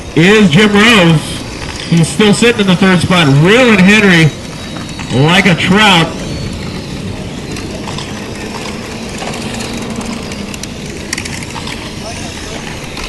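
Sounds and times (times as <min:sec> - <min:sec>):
car whine passing: 0:00.0 - 0:13.0.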